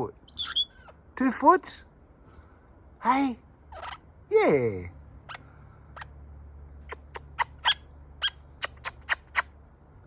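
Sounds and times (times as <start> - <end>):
parrot squeaky chirps: 0.2 - 1.1, 3.7 - 4.1, 5.3 - 6.1, 6.9 - 9.5.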